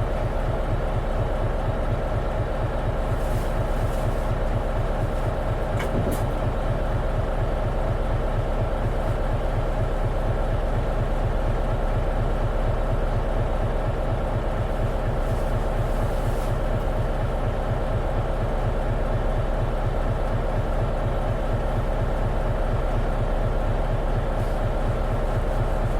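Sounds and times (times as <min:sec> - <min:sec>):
bus diesel engine throbbing: 0:00.0 - 0:25.9
cabin rumble: 0:02.7 - 0:07.6, 0:14.7 - 0:18.3, 0:22.9 - 0:25.9.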